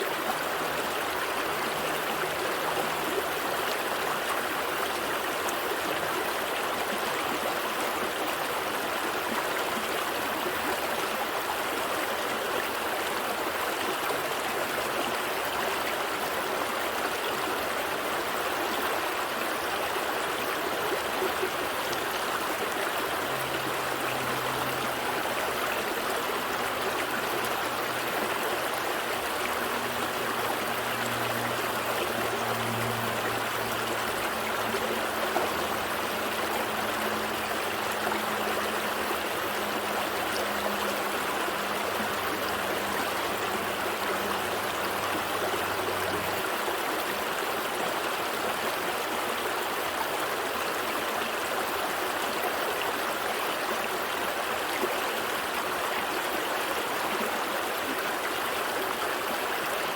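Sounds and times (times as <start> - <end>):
gentle stream flowing: 0.0 - 59.9.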